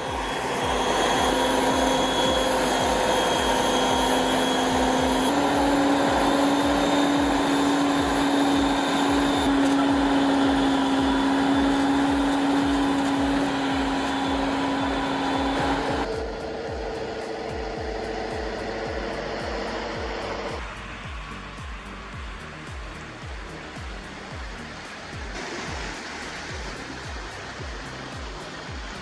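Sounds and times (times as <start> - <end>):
truck diesel engine labouring: 0.0 - 20.6.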